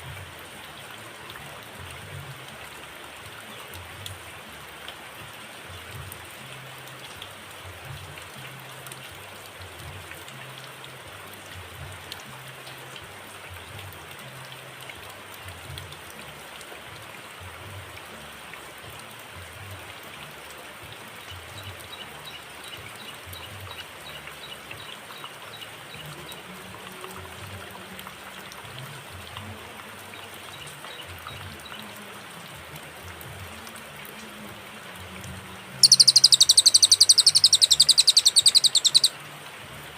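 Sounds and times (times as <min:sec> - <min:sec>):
water noise: 0:20.2 - 0:39.9
rapid high ticks: 0:35.8 - 0:39.1.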